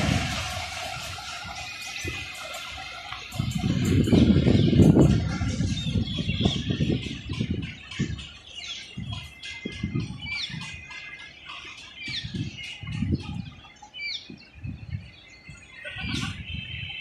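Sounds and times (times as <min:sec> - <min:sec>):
low rumbling thumps: 0:00.0 - 0:10.9
small birds chirping: 0:01.2 - 0:17.0.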